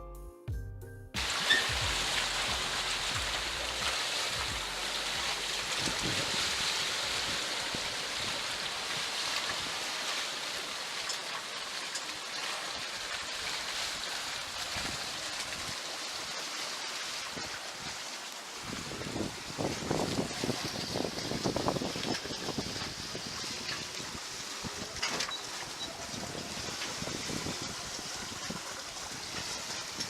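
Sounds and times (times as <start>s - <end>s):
water rushing past a hull: 1.2s - 30.0s
wind buffeting the microphone: 5.7s - 9.8s, 18.6s - 25.1s, 25.8s - 30.0s.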